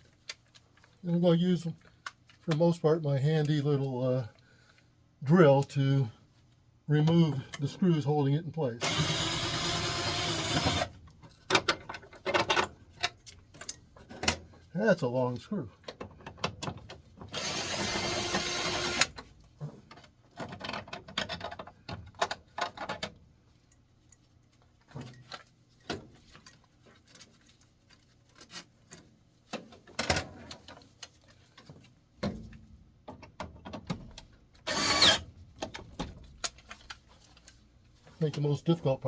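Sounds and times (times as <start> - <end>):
handheld drill running: 8.8 - 10.9, 17.4 - 19.1, 34.7 - 35.2.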